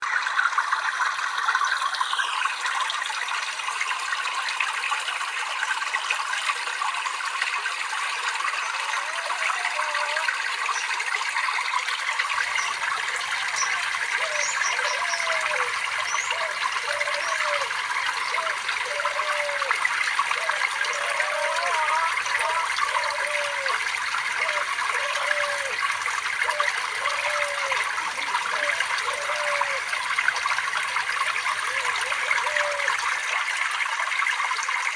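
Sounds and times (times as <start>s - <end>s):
water trickling and babbling: 0.0s - 34.9s.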